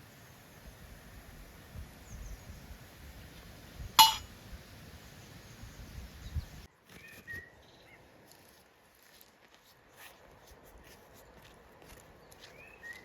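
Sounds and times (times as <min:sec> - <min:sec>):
clink of hard objects: 0:04.0 - 0:04.3.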